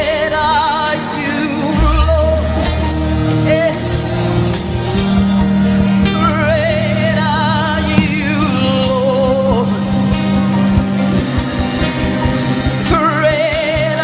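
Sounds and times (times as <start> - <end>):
gospel music: 0.0 - 14.0
held bass note: 7.9 - 10.0.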